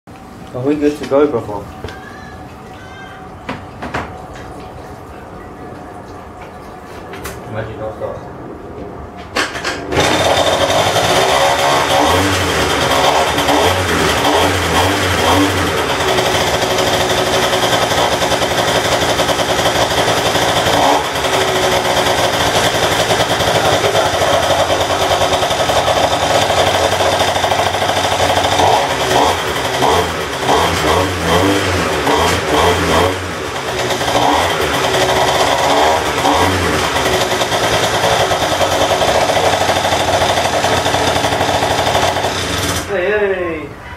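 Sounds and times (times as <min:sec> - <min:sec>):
scooter engine revving: 0:09.4 - 0:43.0.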